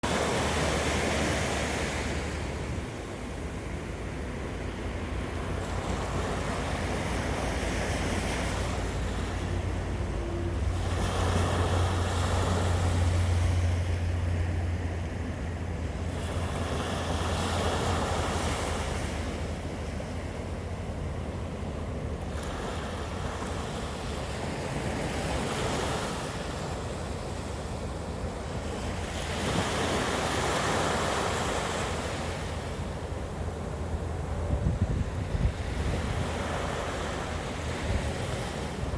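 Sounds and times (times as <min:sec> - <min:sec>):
waves breaking on shore: 0:00.0 - 0:38.9
wind buffeting microphone: 0:32.9 - 0:38.9.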